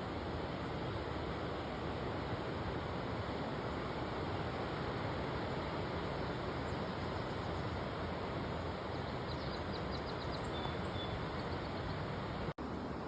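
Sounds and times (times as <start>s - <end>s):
river rushing: 0.0s - 13.0s
small bird chirping: 9.3s - 11.8s.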